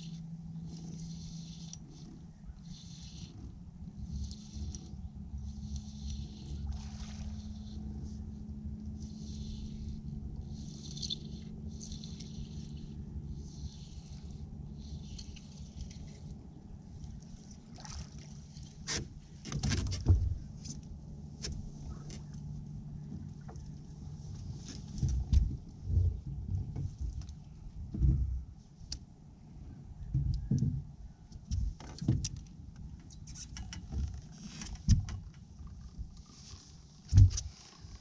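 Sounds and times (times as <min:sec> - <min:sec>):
low steady hum: 0:00.0 - 0:38.0
gear knocking in a boat: 0:08.8 - 0:28.5, 0:30.0 - 0:38.0.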